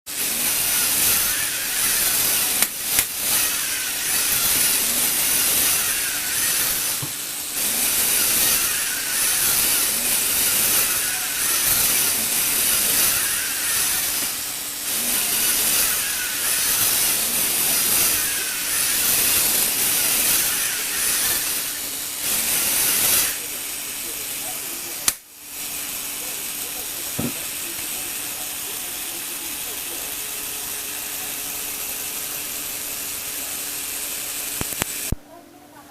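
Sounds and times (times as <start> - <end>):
toy motor and gears whirring: 0.1 - 35.2.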